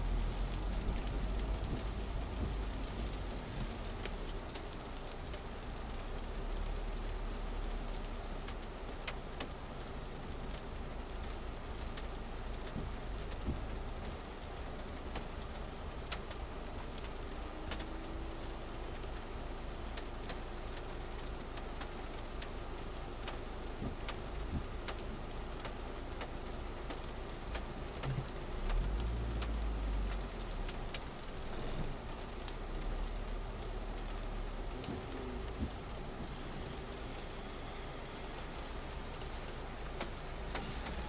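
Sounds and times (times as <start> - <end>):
rain on car windshield and roof: 0.0 - 41.0
raindrops ticking: 0.0 - 41.0
low cabin rumble: 27.8 - 41.0.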